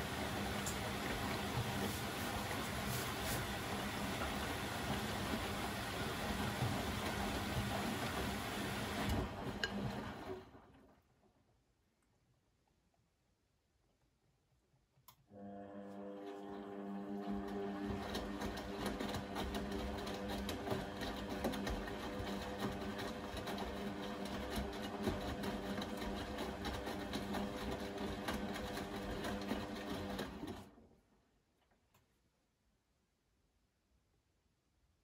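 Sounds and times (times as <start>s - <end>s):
washing machine motor hum: 0.0s - 11.0s, 15.3s - 31.0s.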